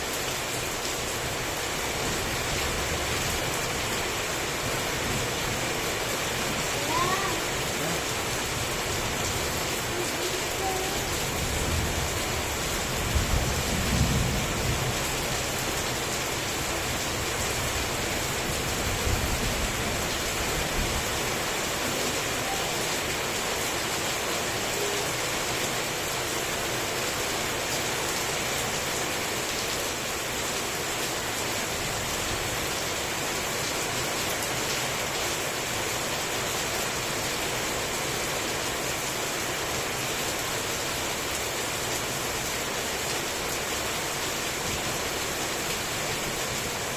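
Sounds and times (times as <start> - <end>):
heavy rain: 0.0 - 46.9
low thunder rumbles: 11.4 - 15.6.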